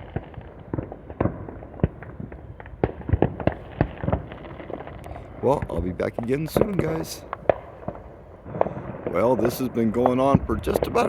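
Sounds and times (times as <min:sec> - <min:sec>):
fireworks and firecrackers banging: 0:00.0 - 0:11.0.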